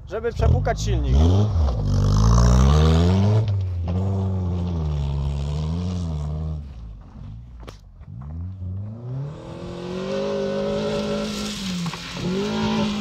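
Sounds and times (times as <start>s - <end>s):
car engine revving: 0.4s - 13.0s.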